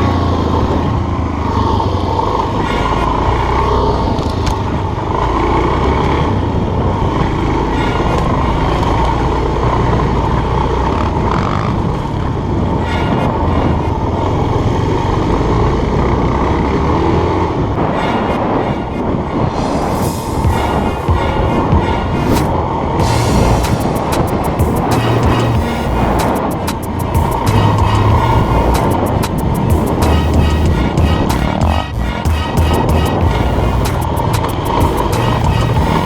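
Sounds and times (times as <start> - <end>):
motorcycle engine running: 23.0 - 36.0.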